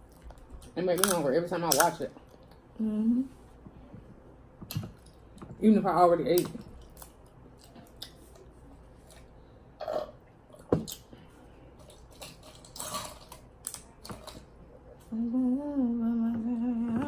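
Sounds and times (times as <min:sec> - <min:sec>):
person humming: 0:02.8 - 0:03.3, 0:15.0 - 0:17.0.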